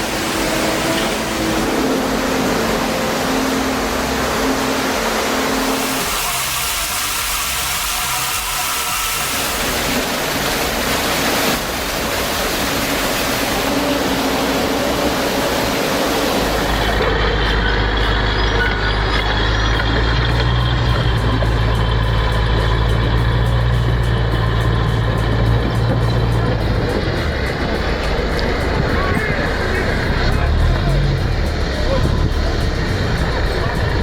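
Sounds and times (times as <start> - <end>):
diesel engine drone: 0.0 - 34.0.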